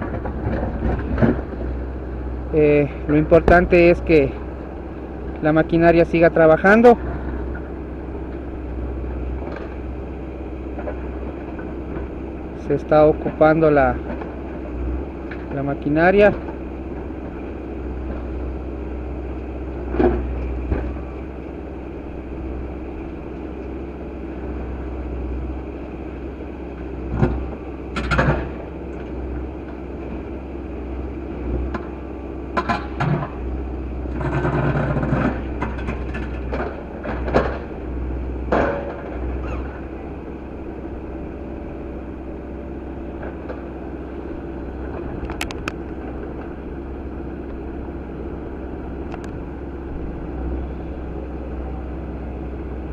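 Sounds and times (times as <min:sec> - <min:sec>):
knocks and clunks: 0:00.0 - 0:01.7, 0:27.1 - 0:28.6, 0:34.1 - 0:37.7, 0:38.5 - 0:39.8
tractor engine running: 0:00.0 - 0:52.9.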